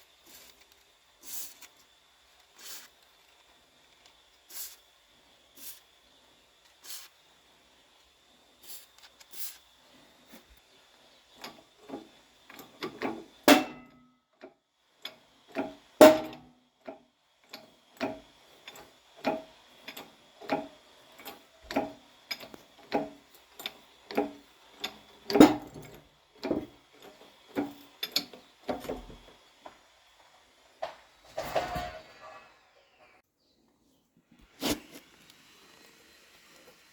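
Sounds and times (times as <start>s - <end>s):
hammer striking steel: 13.5s - 14.0s, 16.0s - 16.5s.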